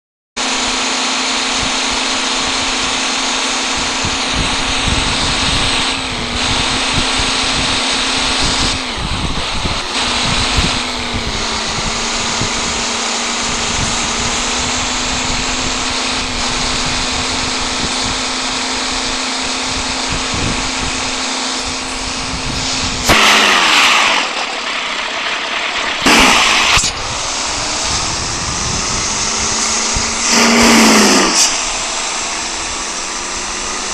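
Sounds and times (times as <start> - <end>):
heavy truck engine running: 0.4 - 33.9
wind buffeting microphone: 1.5 - 23.2, 24.4 - 33.9.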